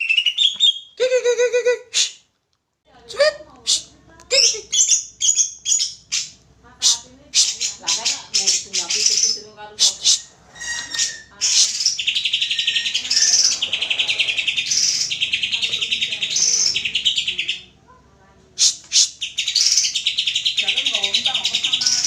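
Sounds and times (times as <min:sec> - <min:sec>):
bird singing buzzy trills: 0:04.3 - 0:06.4, 0:07.4 - 0:17.7, 0:18.9 - 0:22.0.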